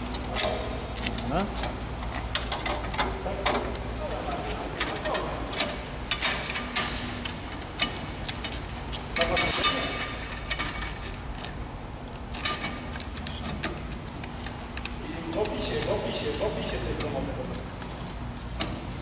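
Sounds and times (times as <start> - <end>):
metallic clicks and knocks: 0.0 - 11.6
low steady hum: 0.0 - 19.0.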